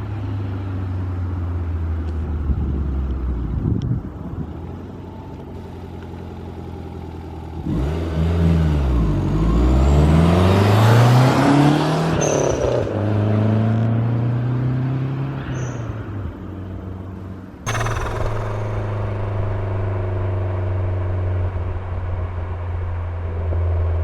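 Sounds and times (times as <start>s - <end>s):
faint high turbo whistle: 17.7s - 20.7s.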